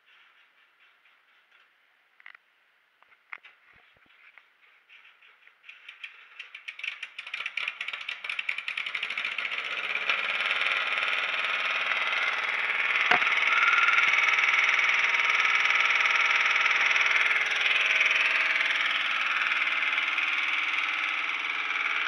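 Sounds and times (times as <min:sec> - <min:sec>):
car engine running: 0:09.2 - 0:22.0
sharp click: 0:13.1 - 0:13.3.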